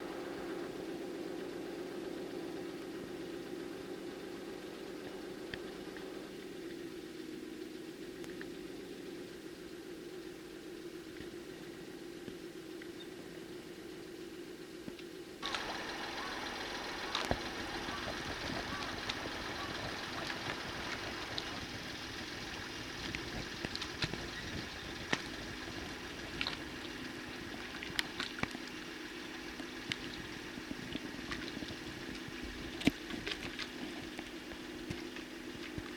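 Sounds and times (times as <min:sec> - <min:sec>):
steady machine hum: 0:00.0 - 0:35.9
even hiss: 0:15.4 - 0:31.0.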